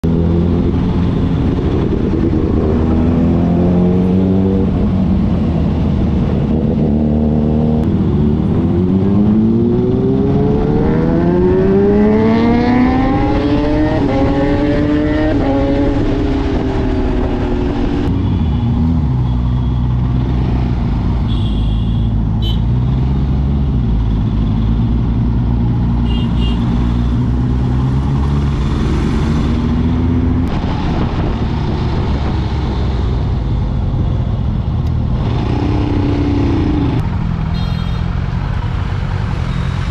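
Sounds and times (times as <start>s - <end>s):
road and wind noise: 0.0s - 39.9s.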